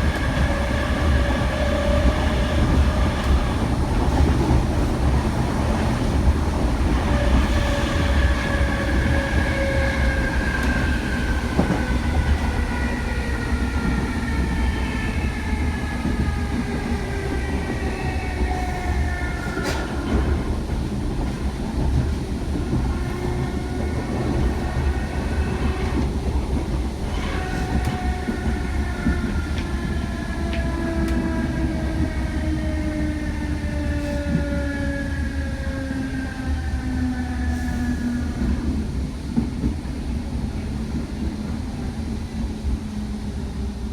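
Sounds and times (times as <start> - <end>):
train rumbling on rails: 0.0 - 43.9
rail clicks: 16.0 - 31.4.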